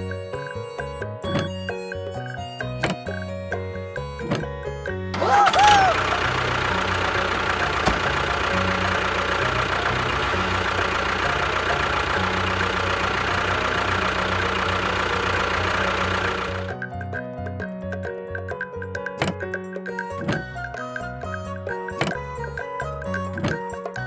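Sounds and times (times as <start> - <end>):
background music: 0.0 - 24.0
motor running steadily: 5.2 - 16.8.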